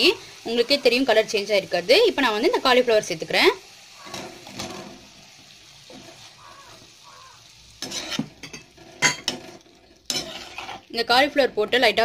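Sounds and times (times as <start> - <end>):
vegetables sizzling in oil: 0.0 - 12.0
metal spoon scraping pan: 7.8 - 10.9.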